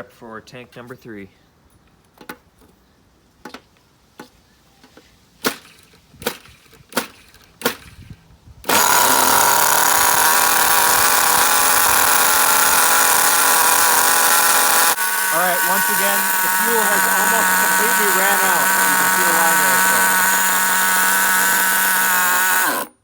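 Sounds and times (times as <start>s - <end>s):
engine cranking clicks: 5.4s - 8.0s, 8.7s - 23.0s
small engine idling loudly: 8.7s - 23.0s.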